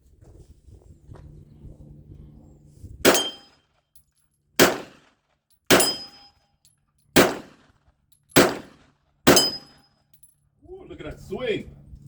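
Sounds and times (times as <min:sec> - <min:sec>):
pistol shots: 0:03.1 - 0:03.5, 0:04.6 - 0:05.1, 0:05.7 - 0:06.2, 0:07.2 - 0:07.7, 0:08.4 - 0:09.8
steel target ringing: 0:03.1 - 0:03.5, 0:05.7 - 0:06.4, 0:09.3 - 0:09.8.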